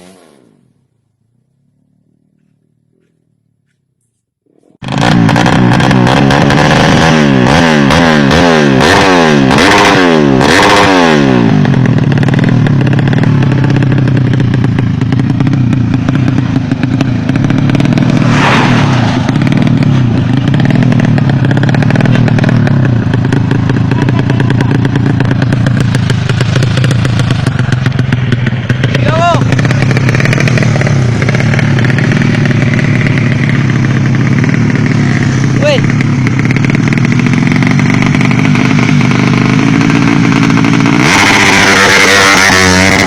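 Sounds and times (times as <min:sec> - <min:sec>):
engine revving and running: 0:00.0 - 0:00.7, 0:04.8 - 0:43.0.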